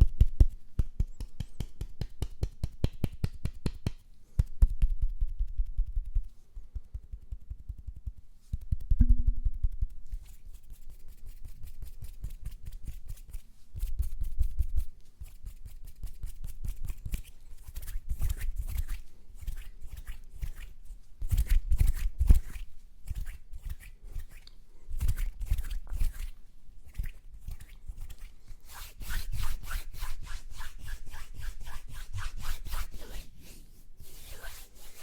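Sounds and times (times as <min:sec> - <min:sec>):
rubbing on microphone: 0:08.2 - 0:35.0.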